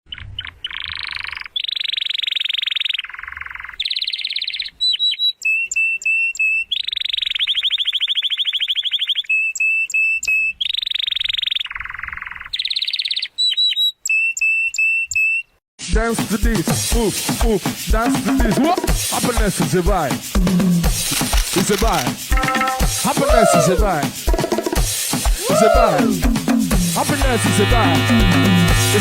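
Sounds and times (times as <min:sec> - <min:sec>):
bird chirping with buzzy trills: 0:00.1 - 0:15.4
short high whistled notes: 0:22.3 - 0:23.8.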